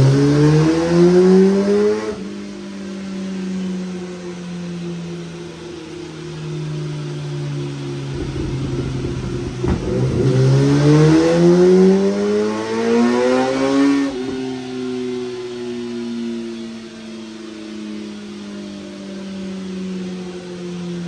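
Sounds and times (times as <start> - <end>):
motorcycle engine revving: 0.0 - 2.6, 7.8 - 14.7.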